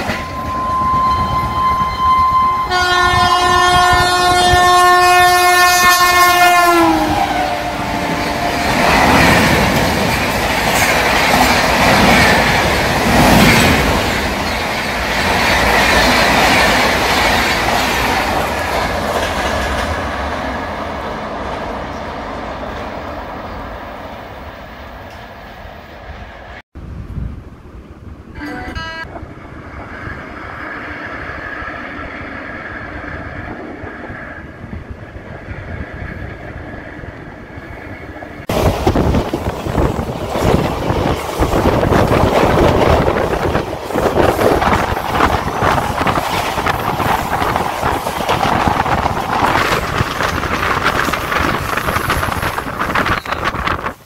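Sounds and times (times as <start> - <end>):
distant train hum: 0.0 - 54.0
loud rushing train rumble: 0.0 - 54.0.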